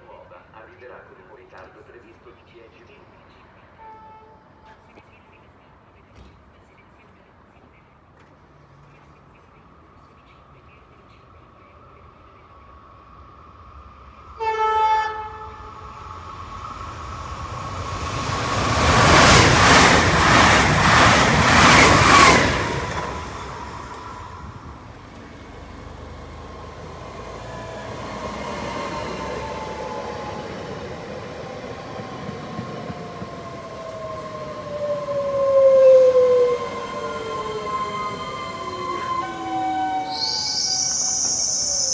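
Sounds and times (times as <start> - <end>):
train horn blast: 3.8 - 4.8, 14.4 - 16.1, 36.1 - 40.7
train passing at speed: 8.7 - 41.9.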